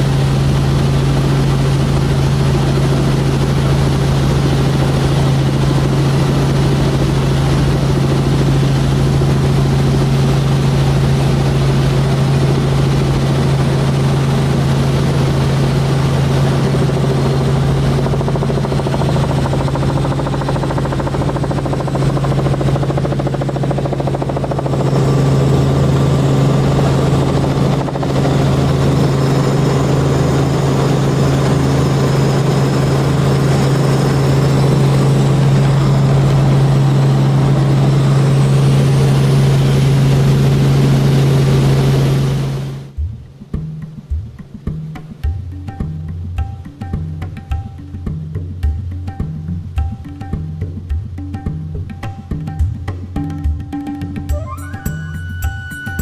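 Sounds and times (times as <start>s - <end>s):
helicopter rotor drone: 0.0s - 43.0s.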